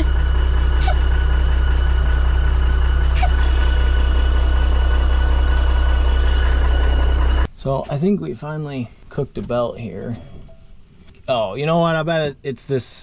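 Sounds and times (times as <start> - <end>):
diesel engine idling: 0.0 - 7.5
high-pitched whine: 0.0 - 7.5.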